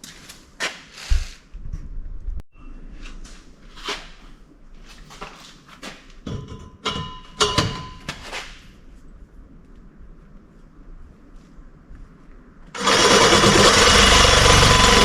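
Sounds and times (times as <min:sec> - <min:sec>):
steel pipe knocking and clanking: 0:06.2 - 0:08.1.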